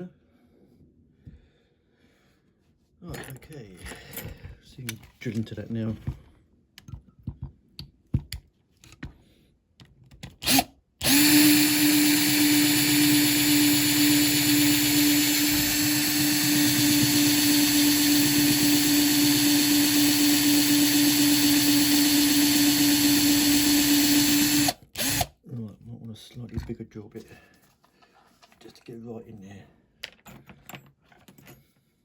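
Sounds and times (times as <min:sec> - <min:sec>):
small electric drill running: 0:10.4 - 0:25.3.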